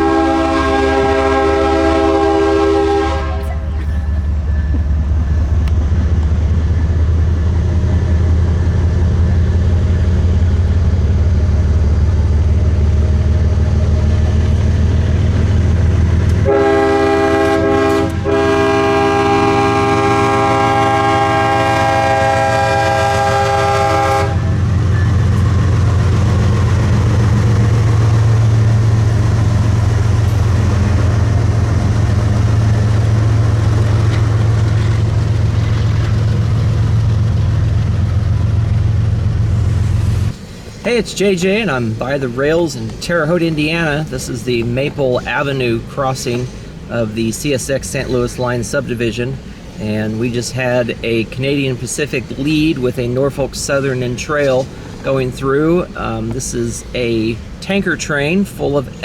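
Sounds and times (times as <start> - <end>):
locomotive air horn blast: 0.0 - 4.4, 16.3 - 25.4
diesel locomotives running: 0.0 - 59.0.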